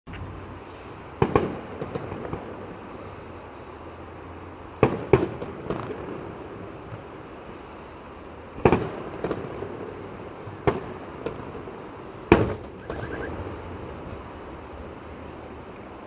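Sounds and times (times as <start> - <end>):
fireworks booming: 0.1 - 16.0
small firework pops: 1.1 - 3.2, 8.2 - 15.8.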